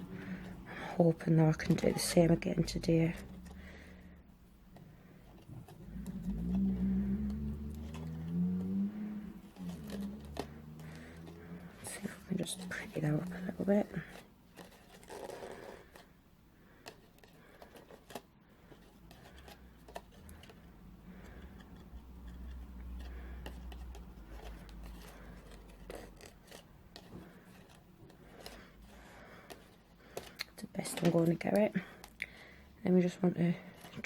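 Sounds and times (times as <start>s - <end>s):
ribbon rustling: 0.0s - 32.2s
paper scraping: 5.0s - 16.1s, 16.8s - 32.0s.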